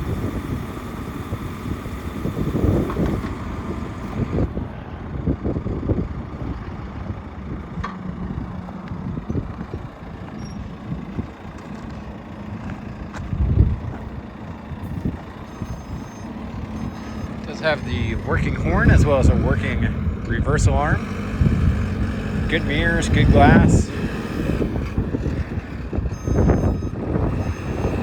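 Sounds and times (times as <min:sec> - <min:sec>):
reversing alarm beeps: 0:00.0 - 0:04.5, 0:14.8 - 0:28.0
backhoe diesel engine rumbling: 0:00.0 - 0:28.0.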